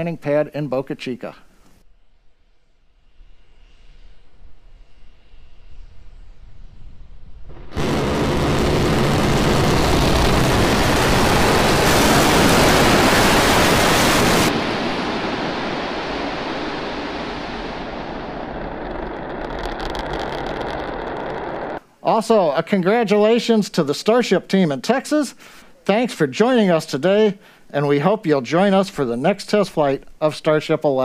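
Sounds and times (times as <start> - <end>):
rocket engines rumbling hiss: 3.0 - 21.8.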